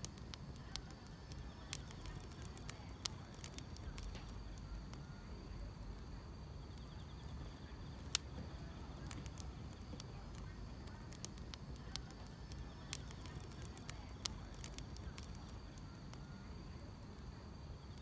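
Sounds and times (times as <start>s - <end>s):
insects chirring: 0.0s - 18.0s
low steady rumble: 0.0s - 18.0s
wood fire crackling and popping: 0.0s - 18.0s.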